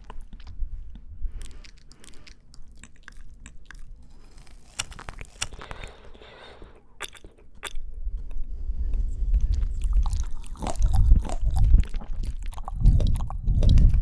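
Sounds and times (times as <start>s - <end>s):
wet chewing of fruit: 0.0s - 14.0s
crisp clicks: 1.4s - 6.2s.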